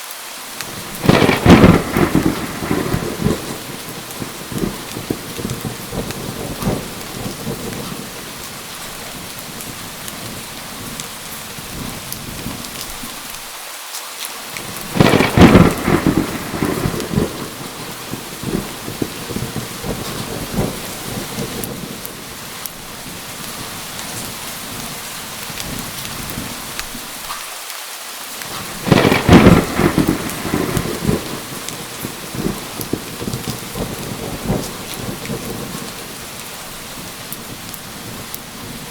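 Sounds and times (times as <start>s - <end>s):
heavy rain falling: 0.0s - 38.9s
thunder crashes: 0.7s - 12.6s, 14.6s - 22.4s, 28.5s - 38.9s.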